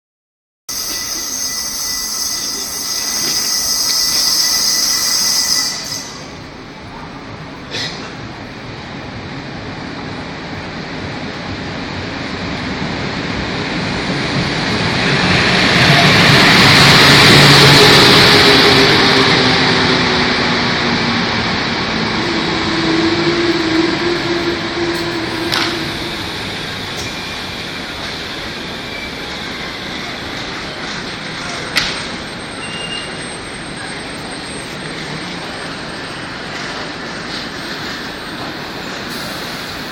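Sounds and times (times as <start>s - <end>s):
train wheels rumbling on rails: 0.7s - 39.9s
electric locomotive motor tones: 22.1s - 39.9s.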